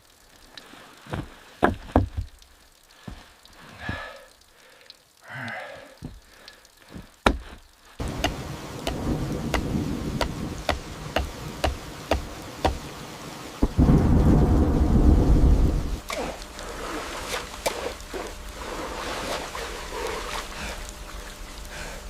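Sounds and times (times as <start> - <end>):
steady rain: 0.0 - 22.0
low rumble of thunder: 8.9 - 10.9, 13.6 - 16.0.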